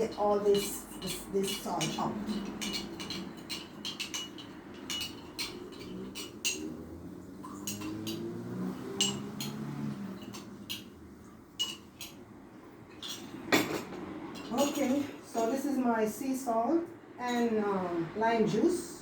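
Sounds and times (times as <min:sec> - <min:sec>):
spoon clinking against container: 0:00.0 - 0:11.0, 0:11.6 - 0:12.2, 0:12.9 - 0:15.5.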